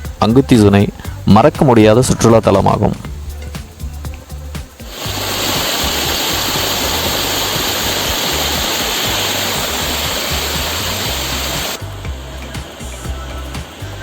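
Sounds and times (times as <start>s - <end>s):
low bass background music: 0.0s - 14.0s
waterfall rushing: 4.7s - 14.0s.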